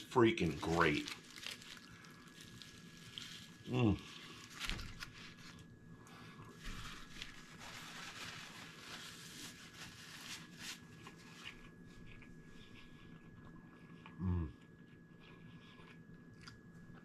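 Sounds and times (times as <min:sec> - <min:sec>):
paper napkin rustling: 0:00.4 - 0:05.6, 0:06.5 - 0:11.6
chewing with wet clicks: 0:13.1 - 0:17.0.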